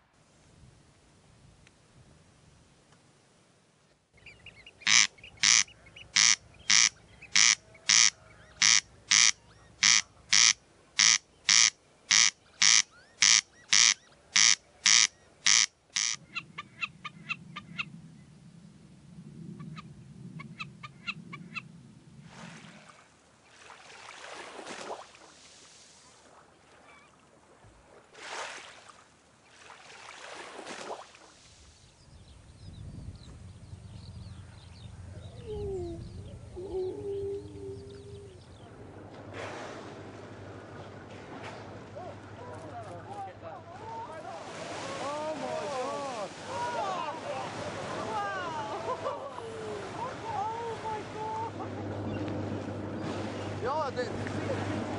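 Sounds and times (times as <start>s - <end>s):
animal calling: 4.2s - 17.9s, 35.1s - 38.8s.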